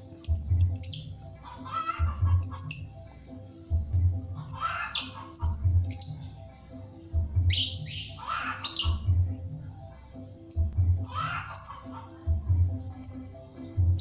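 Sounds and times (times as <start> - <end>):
lovebird chirping: 0.0 - 3.0, 3.8 - 6.4, 7.5 - 9.1
background music with beat: 0.0 - 14.0.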